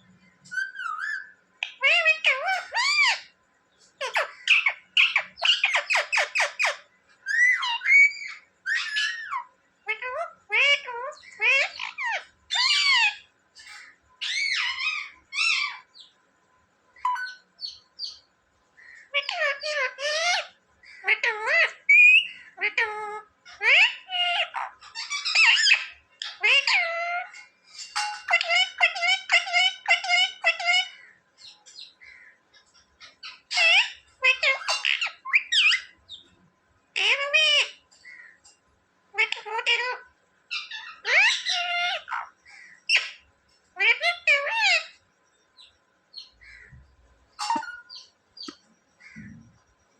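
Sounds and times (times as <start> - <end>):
parakeet calling: 0.4 - 3.3, 4.0 - 16.2, 17.0 - 36.4, 37.0 - 38.4, 39.1 - 45.0, 45.6 - 49.5
parrot talking: 0.5 - 3.3, 4.0 - 16.1, 19.1 - 31.6, 33.0 - 36.0, 37.0 - 37.8, 39.1 - 43.2, 43.8 - 45.0, 47.4 - 48.5.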